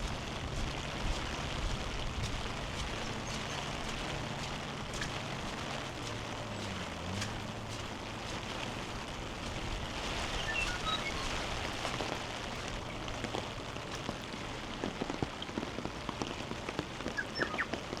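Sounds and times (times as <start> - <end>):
close water drips: 0.0 - 18.0
heavy rain: 0.0 - 18.0
high chirps: 10.4 - 11.6.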